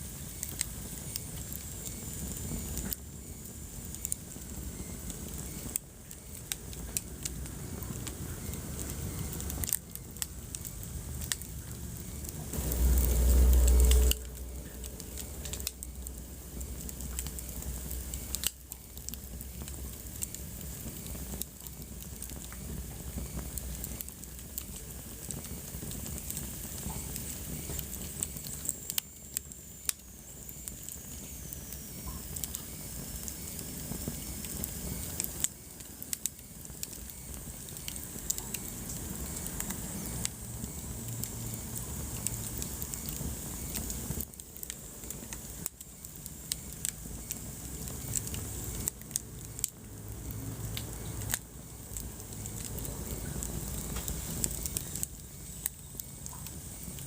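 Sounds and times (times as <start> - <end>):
wood fire crackling: 0.0 - 57.0
faint high whistle: 11.8 - 16.1.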